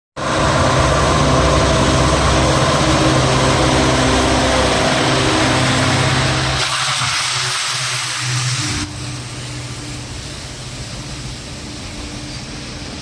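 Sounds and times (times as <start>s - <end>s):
locomotive engine drone: 0.2s - 13.0s
broad rushing hiss: 4.9s - 13.0s.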